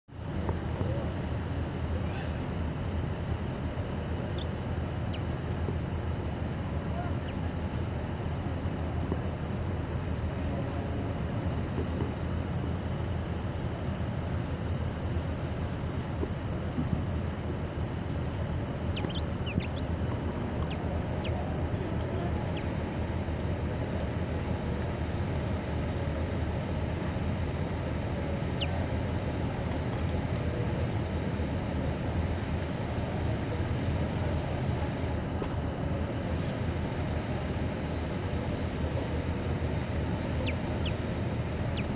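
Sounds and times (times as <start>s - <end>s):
vehicle engine rumble: 0.1s - 41.9s
faint high chirps: 18.9s - 19.9s.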